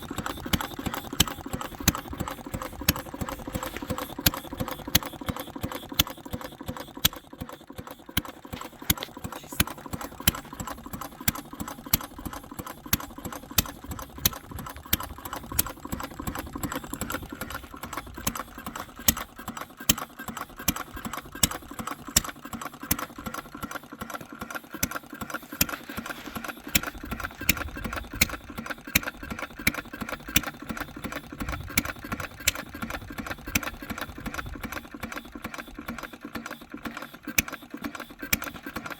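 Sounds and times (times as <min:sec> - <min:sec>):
single-cylinder engine clattering: 0:00.0 - 0:38.9.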